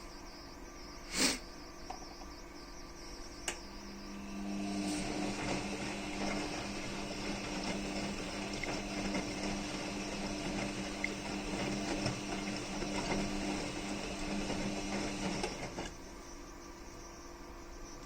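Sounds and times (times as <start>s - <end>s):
low motor hum: 3.3s - 16.2s
water sloshing in washing machine: 4.4s - 16.0s.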